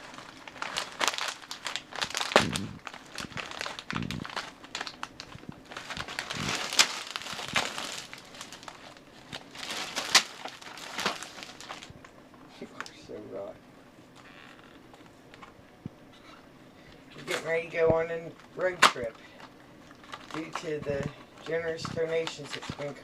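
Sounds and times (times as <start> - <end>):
packaging crinkling and tearing: 0.0 - 11.9, 19.8 - 23.0.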